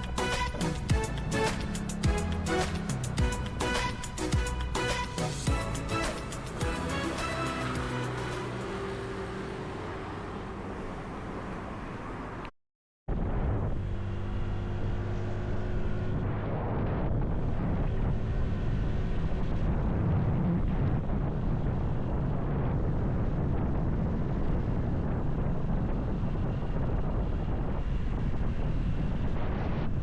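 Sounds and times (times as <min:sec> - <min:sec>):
motorcycle engine running: 0:00.0 - 0:11.2
wind on microphone: 0:15.8 - 0:30.0.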